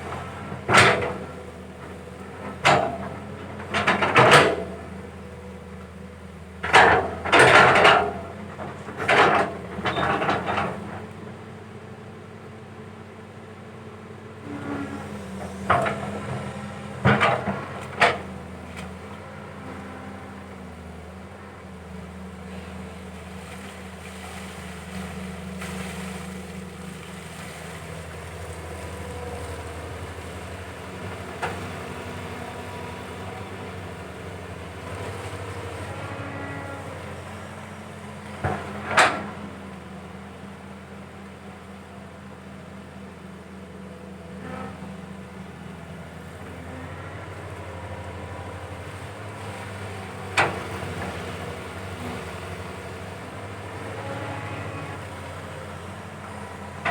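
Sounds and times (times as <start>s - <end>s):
excavator diesel engine running: 0.0s - 56.9s.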